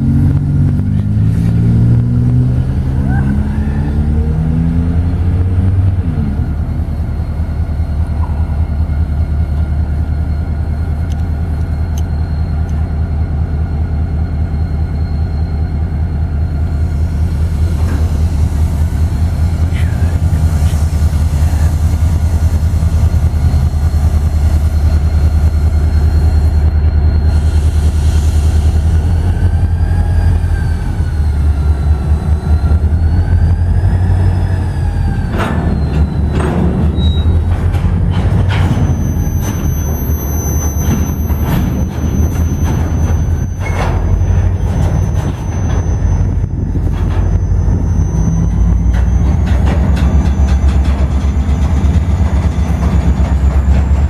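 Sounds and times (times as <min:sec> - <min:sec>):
freight train rumbling past: 0:00.0 - 0:54.0
wheel flanges squealing: 0:02.4 - 0:54.0
wheels clacking over rail joints: 0:17.0 - 0:27.6, 0:28.4 - 0:54.0.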